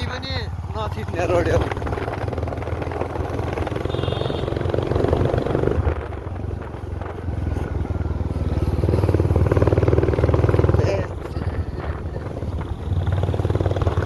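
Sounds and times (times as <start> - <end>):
vehicle engine droning: 0.0 - 14.0.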